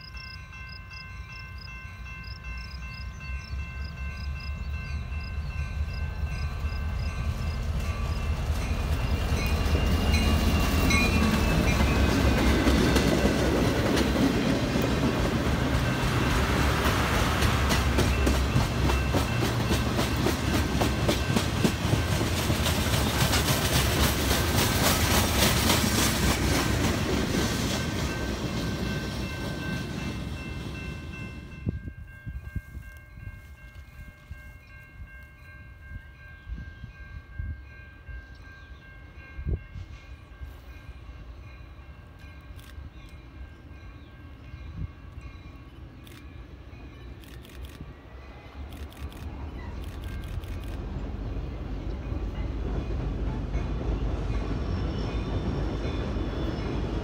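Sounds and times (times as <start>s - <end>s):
train wheels clattering over rails: 7.4s - 31.2s.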